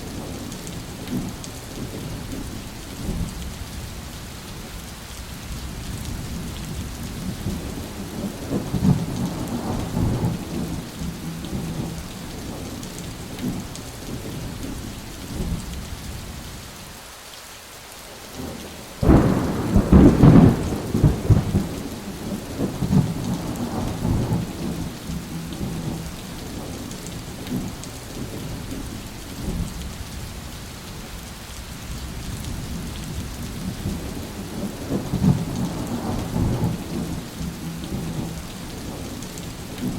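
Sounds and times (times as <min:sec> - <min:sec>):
steady rain: 0:00.0 - 0:39.9
rolling thunder: 0:06.1 - 0:12.8, 0:19.0 - 0:26.9, 0:32.0 - 0:39.9
loud thunderclap: 0:07.4 - 0:11.9, 0:19.0 - 0:26.0, 0:33.1 - 0:39.0.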